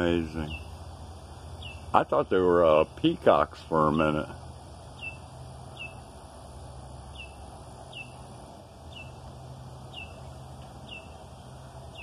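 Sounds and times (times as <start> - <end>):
faint low outdoor rumble: 0.0 - 12.0
bird repeating high call: 5.0 - 6.0, 7.1 - 8.2, 8.9 - 9.2, 9.9 - 10.2, 10.8 - 11.2.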